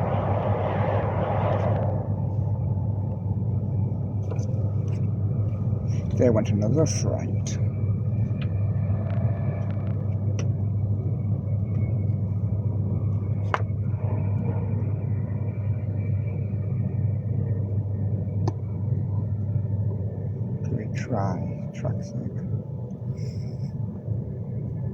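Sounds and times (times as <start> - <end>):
electric train rumbling: 0.0 - 24.9.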